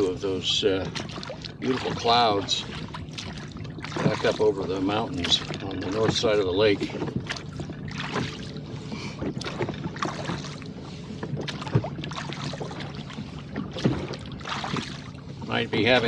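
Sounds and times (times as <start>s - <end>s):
oars working in water: 0.0s - 16.0s
water splashing against hull: 0.0s - 16.0s
wind: 0.0s - 16.0s
oar knocks: 0.9s - 8.5s, 11.2s - 15.0s.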